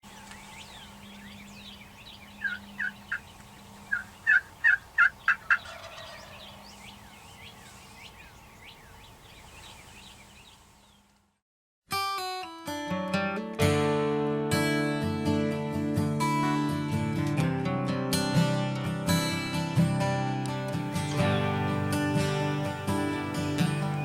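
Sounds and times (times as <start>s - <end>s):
turkey calls: 0.0s - 10.6s
songbirds chirping: 0.0s - 11.4s, 20.9s - 24.0s.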